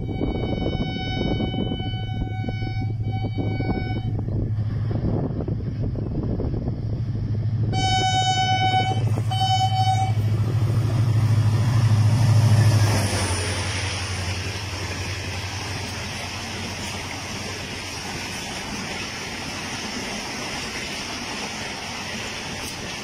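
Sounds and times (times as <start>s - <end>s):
train horn blasts: 0.0s - 4.3s, 7.7s - 10.4s
diesel locomotive engine drone: 0.0s - 23.0s
train coaches rushing past: 4.5s - 23.0s.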